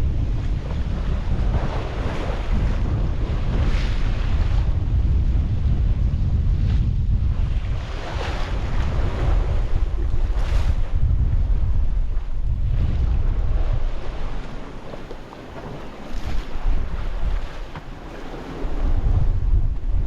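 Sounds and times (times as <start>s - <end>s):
waves washing past hull: 0.0s - 6.0s, 7.4s - 20.0s
wind buffeting microphone: 0.0s - 20.0s.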